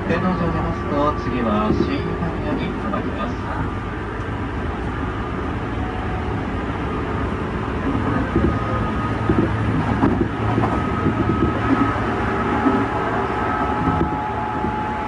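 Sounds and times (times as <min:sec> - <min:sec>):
rumble of wheels on rail: 0:00.0 - 0:15.0
knocks and clatter: 0:09.2 - 0:12.0.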